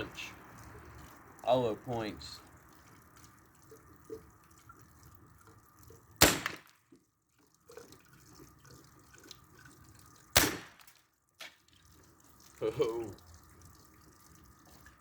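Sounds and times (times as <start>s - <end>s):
water dripping and trickling: 0.0s - 15.0s
air rifle shots: 6.2s - 6.7s, 10.4s - 10.8s.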